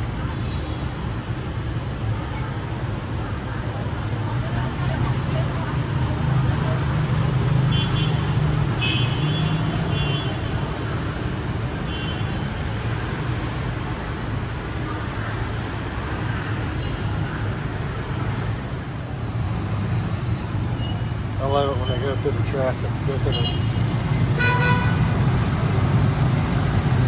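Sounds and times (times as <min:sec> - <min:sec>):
street traffic engines: 0:00.0 - 0:27.0
car horn toots: 0:23.2 - 0:25.1.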